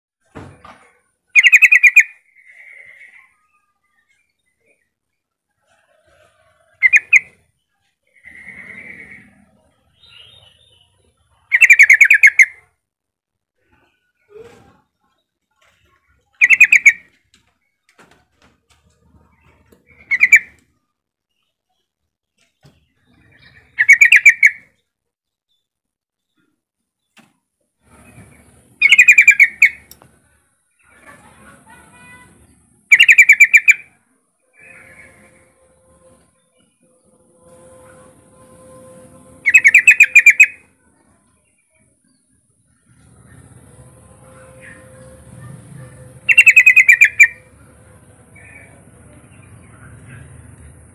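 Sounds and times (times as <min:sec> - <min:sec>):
bird singing: 0:01.3 - 0:05.8, 0:06.6 - 0:12.7, 0:13.6 - 0:18.0, 0:19.2 - 0:50.9
faint low rumble: 0:40.6 - 0:46.4, 0:47.4 - 0:50.9
steady faint hum: 0:42.4 - 0:50.9.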